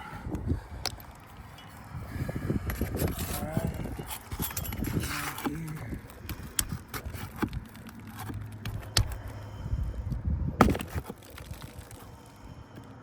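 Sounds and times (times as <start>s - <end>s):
hand tools scraping roof shingles: 2.6s - 9.3s, 10.6s - 12.0s.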